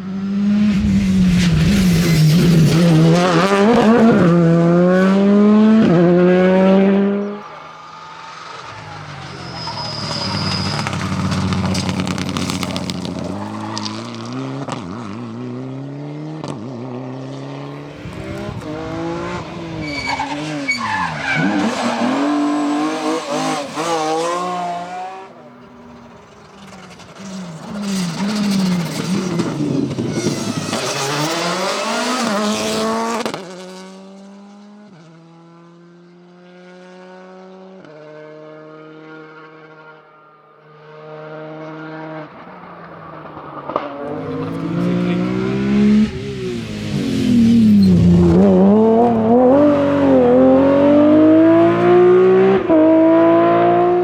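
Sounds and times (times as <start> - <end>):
distant car accelerating away: 0.0 - 39.9, 40.8 - 54.0
rally car engines revving: 0.0 - 40.1, 40.7 - 54.0
tyres skidding: 6.3 - 15.8, 18.0 - 33.7, 42.3 - 53.1.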